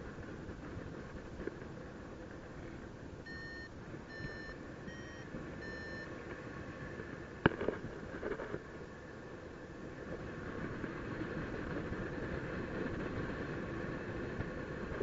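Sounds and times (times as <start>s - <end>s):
wind noise: 0.0s - 15.0s
variometer beeping: 3.2s - 6.2s.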